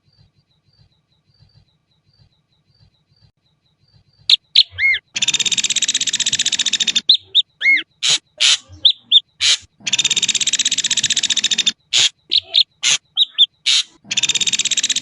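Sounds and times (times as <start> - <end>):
buzzy rattling bird trill: 0.0 - 15.0
bird whistles: 4.3 - 15.0
sharp bird chips: 4.3 - 15.0.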